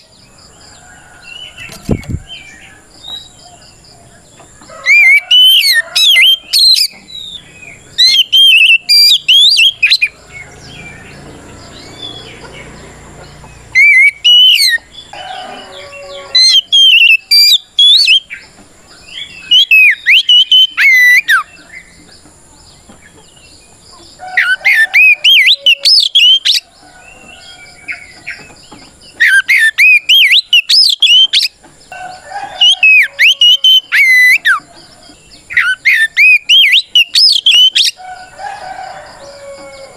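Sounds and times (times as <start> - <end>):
bird singing whistled phrases: 8.0 - 10.1, 13.8 - 14.8, 15.8 - 18.3, 19.4 - 21.5, 24.4 - 26.6, 29.2 - 31.5, 35.5 - 38.0.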